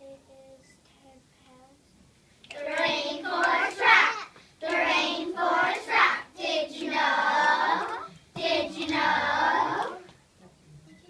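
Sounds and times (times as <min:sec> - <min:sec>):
children singing: 0:02.5 - 0:10.1.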